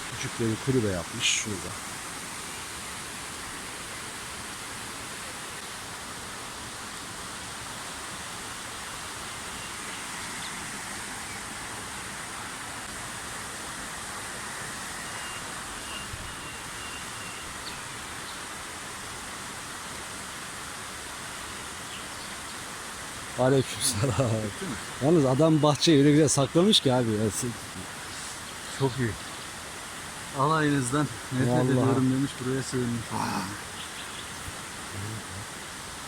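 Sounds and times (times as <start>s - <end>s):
river rushing: 17.9s - 36.0s.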